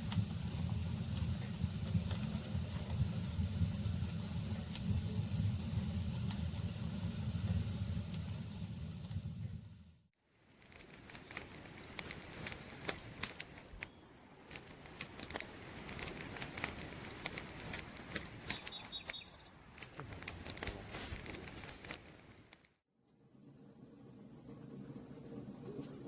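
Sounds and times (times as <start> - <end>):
campfire crackling: 0.0 - 18.8, 19.6 - 22.8
faint high chirps: 17.6 - 19.6.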